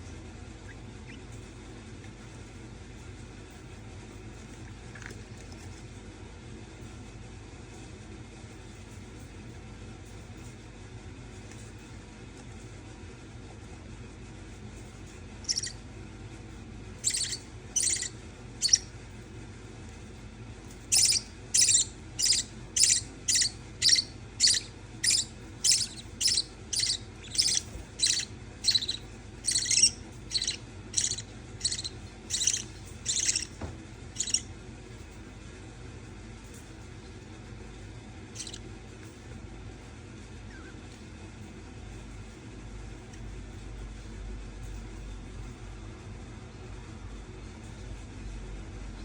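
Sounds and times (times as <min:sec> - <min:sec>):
budgerigar high-pitched calls: 0:15.4 - 0:15.8, 0:17.0 - 0:18.9, 0:20.9 - 0:33.6, 0:34.2 - 0:34.4, 0:38.4 - 0:38.6.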